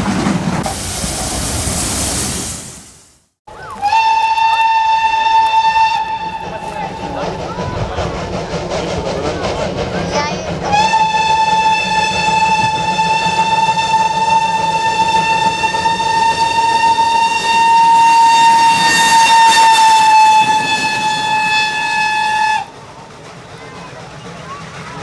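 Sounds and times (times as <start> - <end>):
steam locomotive whistle: 3.6 - 7.1, 10.6 - 22.7.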